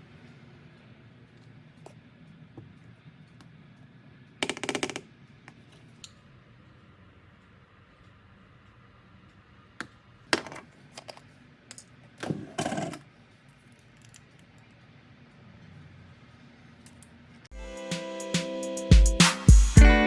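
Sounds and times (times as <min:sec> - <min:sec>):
kitchen utensils clattering: 0:12.2 - 0:13.0.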